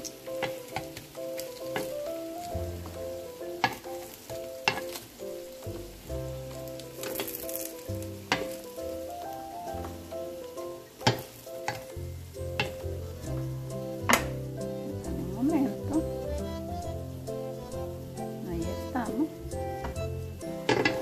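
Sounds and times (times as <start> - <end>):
tofu sizzling in oil: 0.0 - 21.0
metal tongs clicking on pan: 6.7 - 8.6, 11.0 - 11.9, 12.6 - 12.8, 20.7 - 21.0
background music with bass: 11.9 - 21.0.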